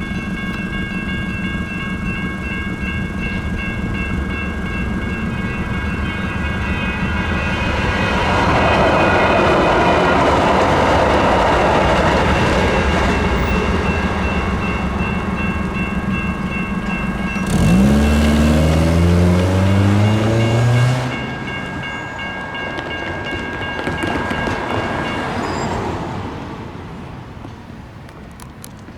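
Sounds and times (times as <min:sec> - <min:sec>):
crossing signal bell ringing: 0:00.0 - 0:27.7
rumble of passing trains: 0:00.0 - 0:28.9
loud low rising tone: 0:04.2 - 0:21.7.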